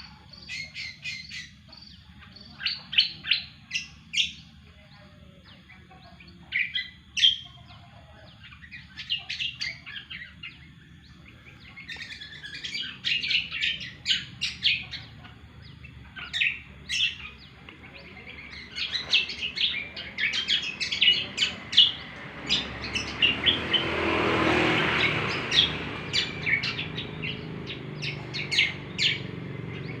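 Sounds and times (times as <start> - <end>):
bird chirping and trilling: 0.0 - 30.0
broad rushing noise: 18.9 - 30.0.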